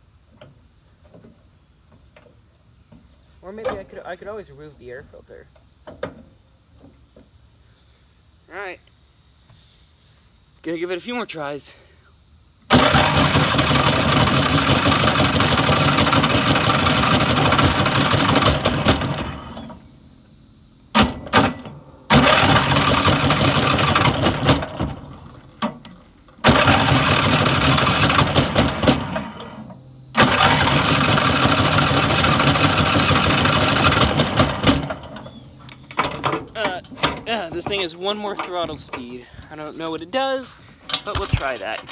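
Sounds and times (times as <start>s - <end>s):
lawn mower engine cranking: 12.7s - 19.9s, 20.9s - 41.9s.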